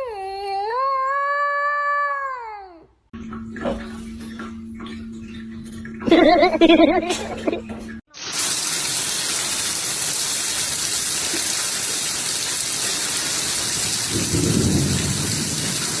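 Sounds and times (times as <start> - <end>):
heavy rain hissing: 8.1 - 16.0.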